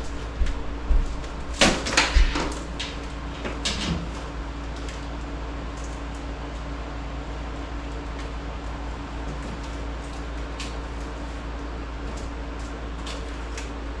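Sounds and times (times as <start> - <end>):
steady low hum: 0.0 - 14.0
sharp knocks and clatters: 1.5 - 4.2.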